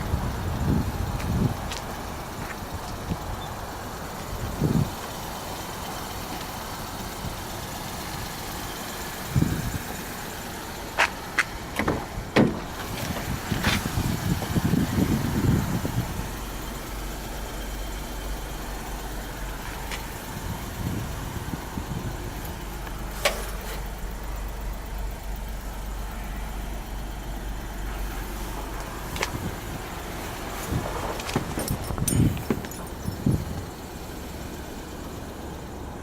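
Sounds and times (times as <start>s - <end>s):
truck engine idling: 0.0s - 36.0s
sharp clicks and knocks: 30.7s - 33.2s.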